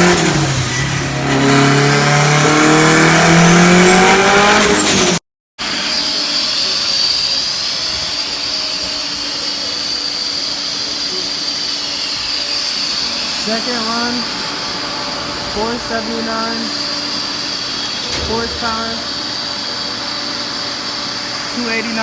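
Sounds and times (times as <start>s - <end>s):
engine revving under load: 0.0s - 5.2s.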